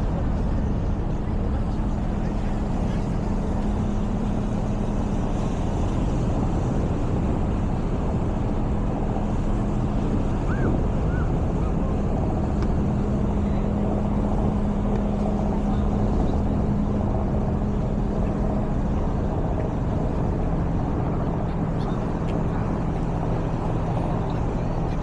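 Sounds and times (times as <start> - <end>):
low engine hum: 0.0 - 25.0
wind and riding noise: 0.0 - 25.0.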